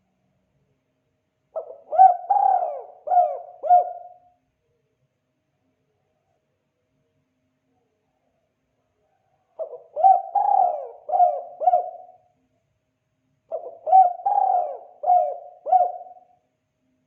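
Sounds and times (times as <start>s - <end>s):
dove cooing: 1.6s - 4.3s, 9.6s - 12.3s, 13.5s - 16.4s.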